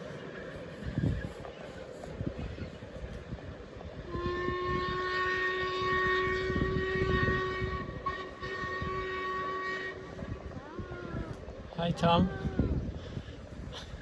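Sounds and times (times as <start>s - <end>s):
low rumble of passing train: 0.0s - 14.0s
steam locomotive whistle: 4.1s - 10.4s.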